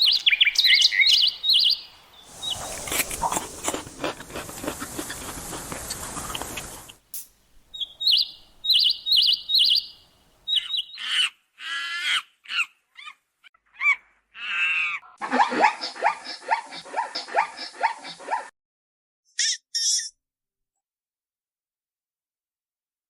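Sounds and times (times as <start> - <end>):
high chirping animal calls: 0.4 - 3.6, 7.7 - 13.1
pitched animal cries: 11.0 - 18.4.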